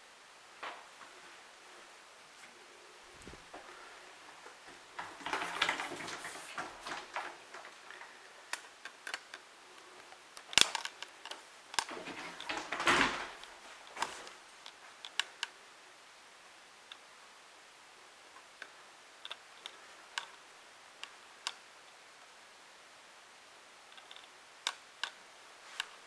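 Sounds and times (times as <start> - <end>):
rustling: 2.4 - 8.2.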